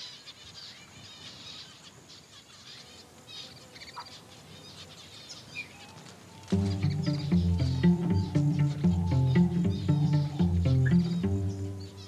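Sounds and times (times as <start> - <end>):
birds chirping: 6.4 - 12.0.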